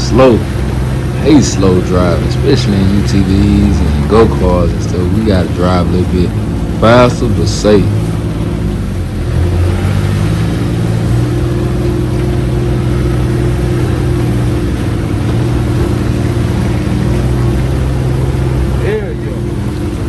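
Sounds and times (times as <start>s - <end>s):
utility vehicle engine running: 0.0s - 20.0s.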